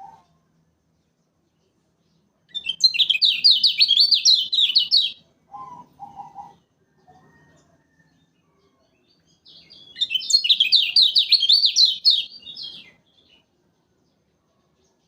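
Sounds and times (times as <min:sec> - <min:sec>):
bird singing high chirping notes: 0:02.5 - 0:06.5, 0:09.4 - 0:13.1.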